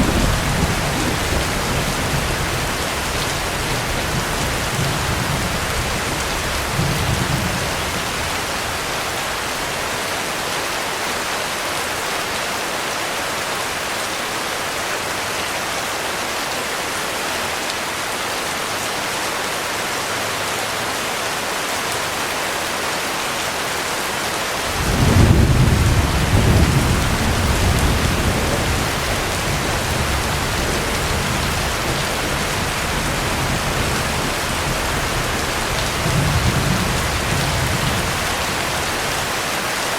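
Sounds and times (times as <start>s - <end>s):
roll of thunder: 0.0s - 8.4s, 24.7s - 39.1s
low thunder rumbling: 0.0s - 8.9s, 24.6s - 39.4s
heavy rain falling: 0.0s - 39.9s.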